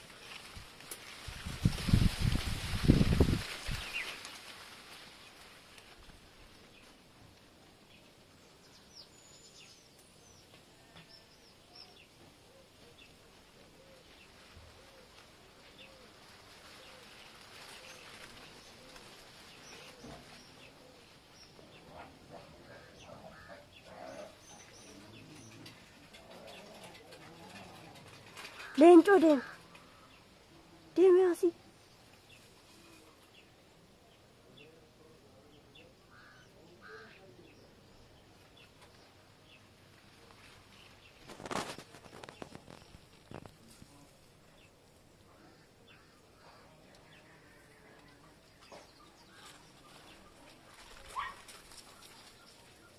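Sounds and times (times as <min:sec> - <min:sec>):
steady background hiss: 0:00.0 - 0:27.1.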